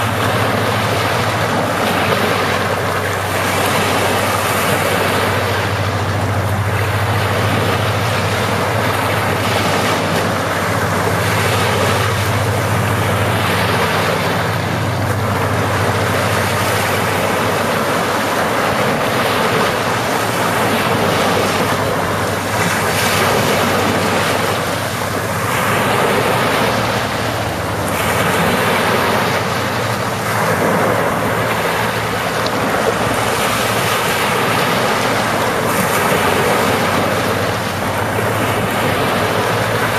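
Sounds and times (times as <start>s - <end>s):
sea waves breaking on shore: 0.0s - 39.9s
steady low hum: 0.0s - 39.9s.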